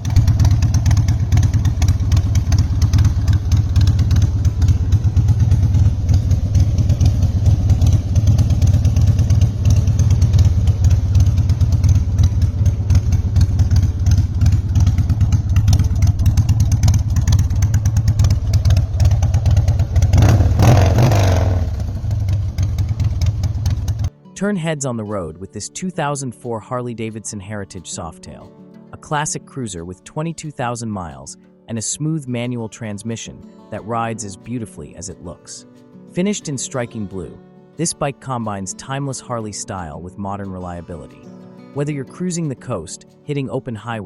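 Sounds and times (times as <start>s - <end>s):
motorcycle engine idling and revving: 0.0s - 24.1s.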